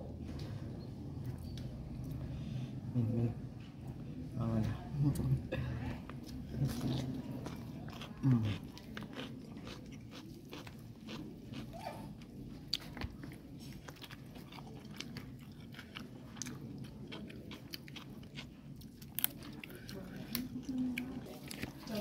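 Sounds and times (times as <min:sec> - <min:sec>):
person chewing food: 0:06.0 - 0:22.0.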